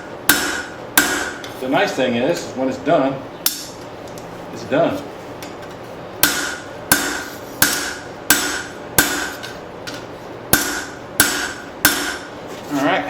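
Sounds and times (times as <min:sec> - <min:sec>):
hammer striking steel on anvil: 0:00.3 - 0:01.5, 0:06.2 - 0:12.3.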